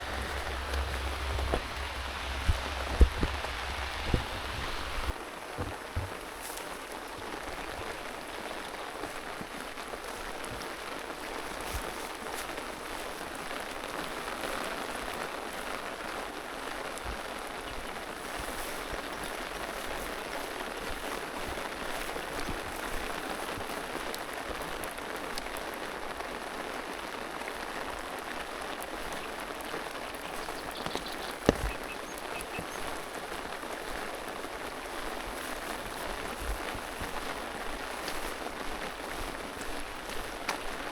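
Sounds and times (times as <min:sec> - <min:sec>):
low hum: 0:00.0 - 0:05.1
steady rain falling: 0:00.0 - 0:40.9.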